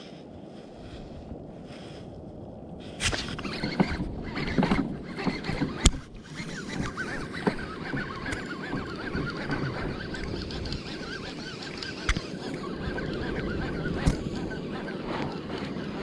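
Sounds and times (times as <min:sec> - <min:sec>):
wind and water rushing: 0:00.0 - 0:16.0
knocks and clatter on a kayak: 0:03.0 - 0:16.0
wavering animal calls: 0:03.4 - 0:16.0.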